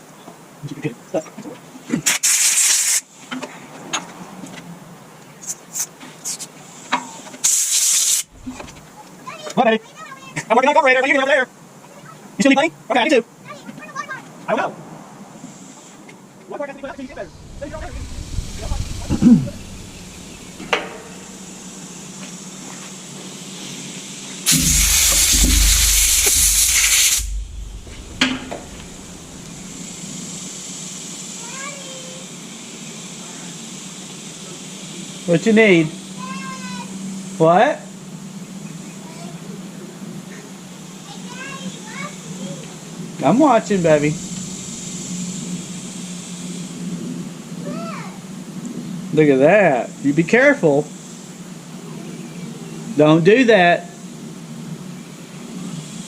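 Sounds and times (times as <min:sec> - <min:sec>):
hissing spray blast: 0:07.4 - 0:08.8, 0:16.8 - 0:22.1, 0:24.5 - 0:30.8, 0:43.5 - 0:46.1
short knock: 0:17.8 - 0:21.3, 0:24.5 - 0:29.9.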